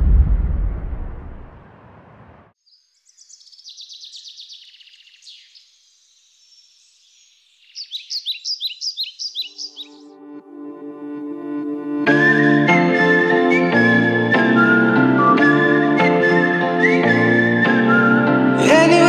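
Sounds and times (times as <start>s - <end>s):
deep boom: 0.0s - 2.4s
birds chirping and trilling: 2.6s - 10.3s.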